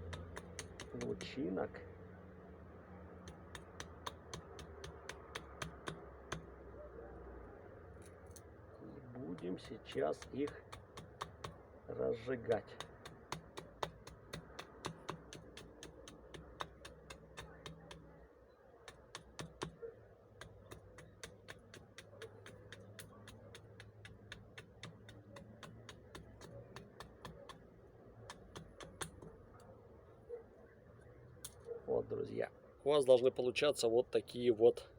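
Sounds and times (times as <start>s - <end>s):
knife shaving wood: 9.2s - 11.5s, 12.6s - 18.2s, 18.8s - 27.7s.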